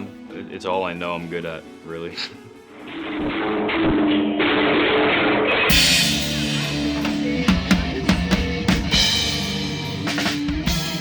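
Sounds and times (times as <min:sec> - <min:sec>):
kick snare and cymbal hits: 0:05.7 - 0:11.0
rock band music: 0:05.7 - 0:11.0.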